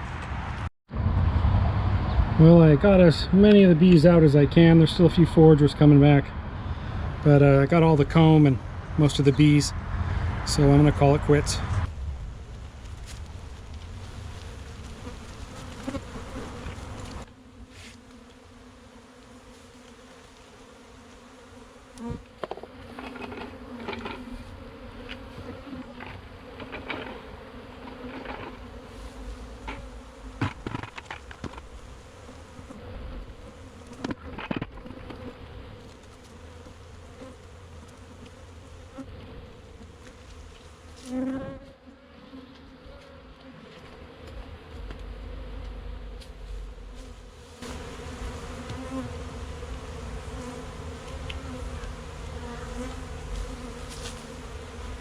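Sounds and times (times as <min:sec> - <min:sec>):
bees buzzing: 0:12.7 - 0:55.0
single bee buzzing close: 0:14.0 - 0:55.0.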